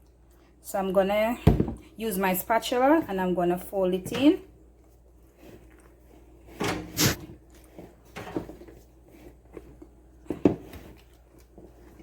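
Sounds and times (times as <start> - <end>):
spatula folding mixture in bowl: 2.7 - 12.0.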